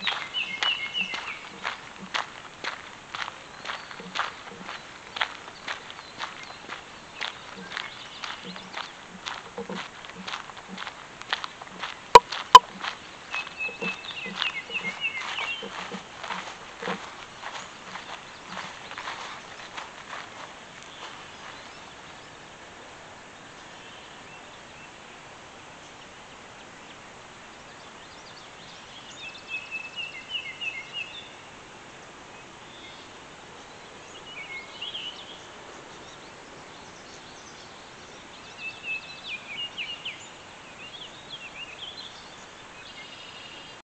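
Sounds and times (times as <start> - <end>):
bird chirping: 0.0 - 22.4
outdoor background hiss: 0.0 - 43.8.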